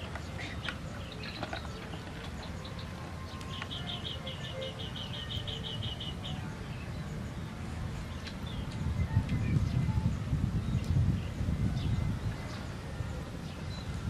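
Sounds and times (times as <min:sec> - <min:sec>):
bird calling high notes: 0:02.6 - 0:06.4
steady low rumble: 0:04.8 - 0:14.0.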